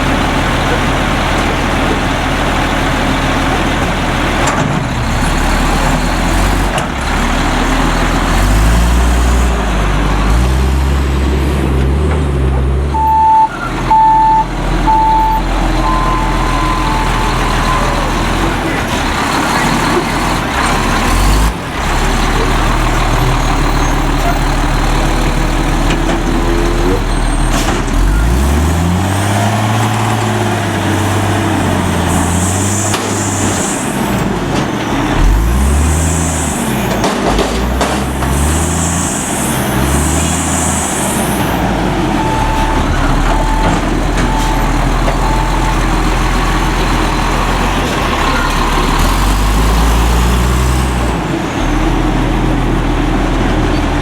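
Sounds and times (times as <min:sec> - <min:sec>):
diesel truck engine revving: 0:00.0 - 0:54.0
beeping alarm: 0:12.9 - 0:18.6, 0:42.2 - 0:46.0.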